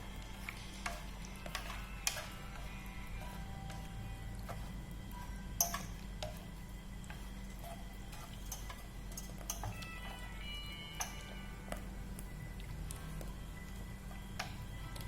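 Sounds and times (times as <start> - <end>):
food frying in hot oil: 0.0 - 9.8
steady low hum: 0.0 - 15.0.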